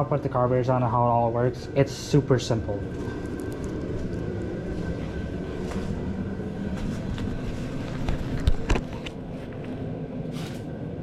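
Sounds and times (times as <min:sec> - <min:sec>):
faint steady whine: 0:00.0 - 0:11.0
space heater rumbling: 0:00.0 - 0:11.0.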